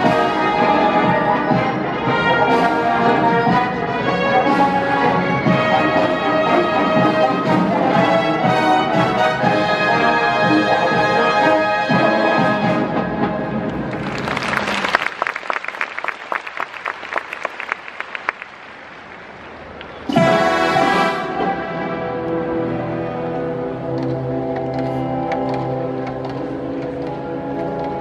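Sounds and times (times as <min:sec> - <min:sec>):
wind band playing: 0:00.0 - 0:15.0, 0:20.0 - 0:28.0
percussion strikes: 0:20.1 - 0:21.9.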